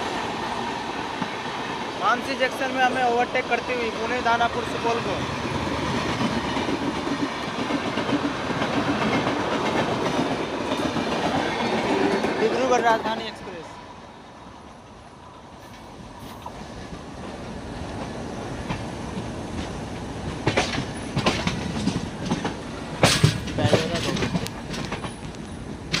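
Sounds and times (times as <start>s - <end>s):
train rumbling on track: 0.0s - 26.0s
wheels clacking over rail joints: 2.2s - 13.4s, 15.6s - 26.0s.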